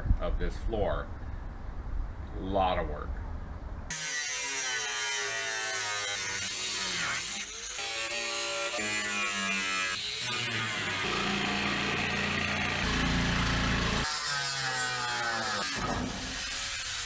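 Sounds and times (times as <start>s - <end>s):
power saw cutting sheet metal: 3.9s - 17.0s.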